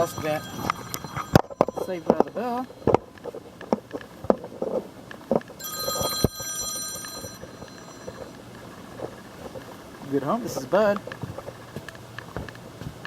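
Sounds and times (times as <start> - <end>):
mobile phone ringing: 0.0 - 3.8, 5.6 - 9.7.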